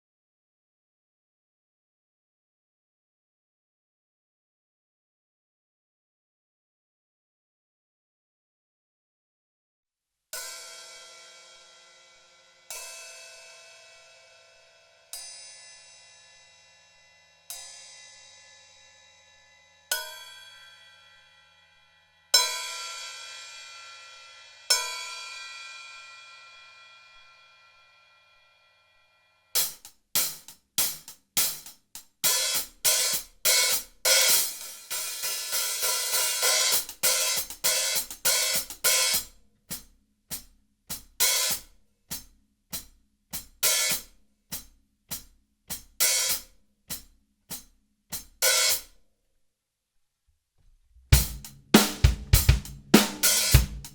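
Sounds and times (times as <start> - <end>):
hi-hat struck with sticks: 29.6 - 48.9, 51.2 - 53.9.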